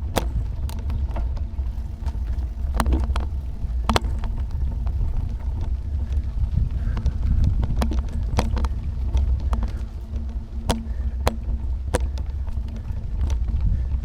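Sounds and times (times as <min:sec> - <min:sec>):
sharp ticks and knocks: 0:00.0 - 0:06.3, 0:06.9 - 0:13.7
bicycle ride rumble: 0:00.0 - 0:14.0
faint hum: 0:00.0 - 0:14.0
wind buffeting microphone: 0:00.0 - 0:14.0.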